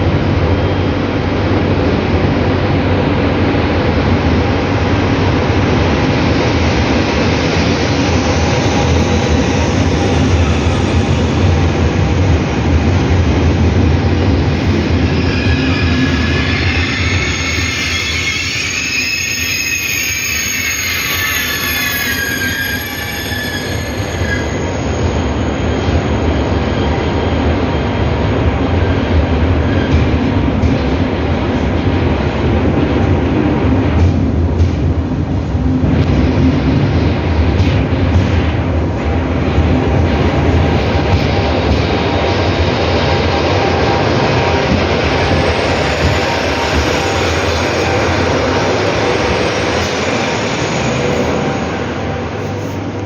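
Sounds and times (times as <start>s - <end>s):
high-speed train running: 0.0s - 53.0s
faint squealing tones: 14.5s - 25.7s.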